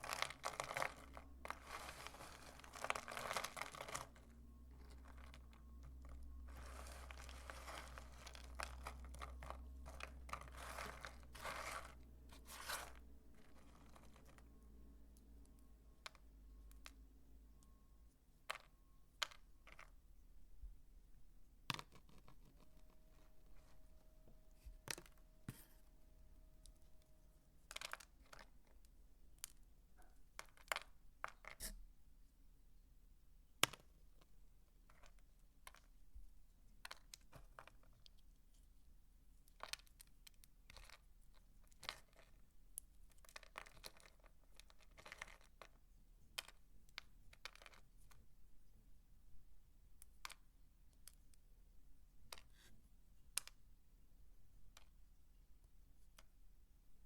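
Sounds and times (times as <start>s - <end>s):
faint steady tone: 0.0s - 30.4s.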